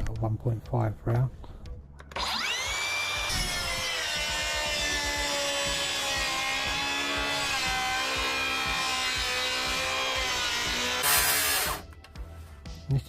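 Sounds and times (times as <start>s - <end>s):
circular saw whine: 2.2s - 11.8s.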